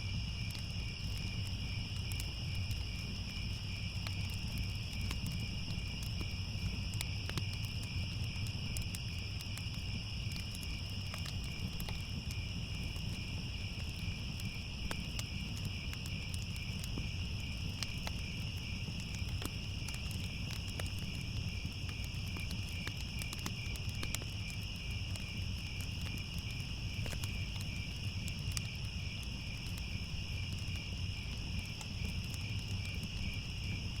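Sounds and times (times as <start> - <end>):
crickets trilling: 0.0 - 34.0
wood fire rumble and crackles: 0.0 - 34.0.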